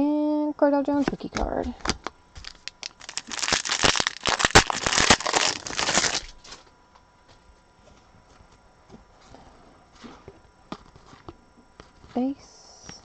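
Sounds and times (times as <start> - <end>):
wrapper tearing and crinkling: 1.9 - 6.7.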